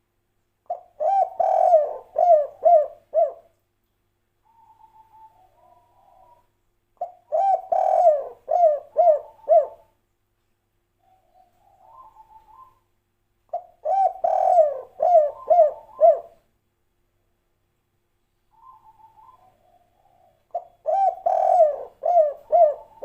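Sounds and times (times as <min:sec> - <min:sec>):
dove cooing: 0:00.7 - 0:03.5, 0:04.4 - 0:10.0, 0:11.0 - 0:12.8, 0:13.5 - 0:16.4, 0:18.5 - 0:23.0.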